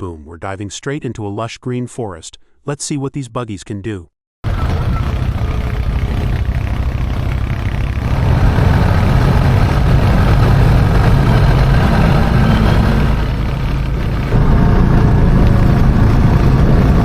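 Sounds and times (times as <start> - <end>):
buggy engine running: 4.4 - 17.0.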